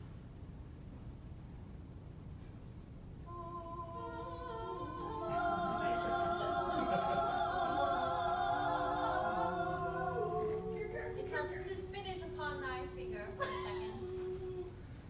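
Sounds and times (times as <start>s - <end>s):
voices singing in operatic harmony: 3.3s - 15.0s.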